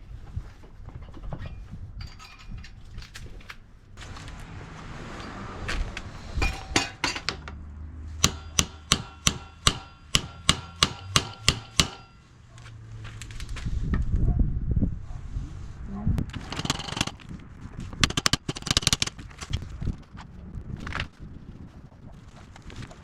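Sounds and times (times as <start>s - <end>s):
sharp knocks: 8.2s - 12.2s, 18.0s - 19.2s
metallic strikes ringing: 8.2s - 12.3s.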